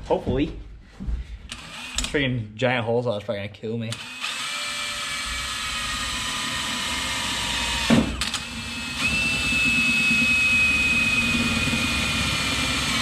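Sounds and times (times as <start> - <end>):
drill motor whine: 1.5 - 2.2, 4.0 - 13.0.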